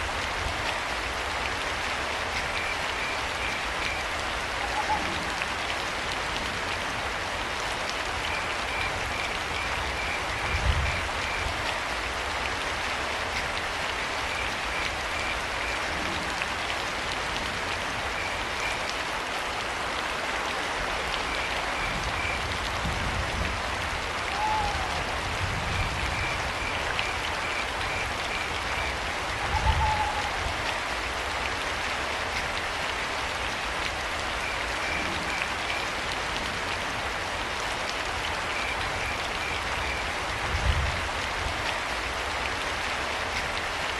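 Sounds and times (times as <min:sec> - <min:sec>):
steady rain falling: 0:00.0 - 0:43.9
owl hooting: 0:29.5 - 0:30.4.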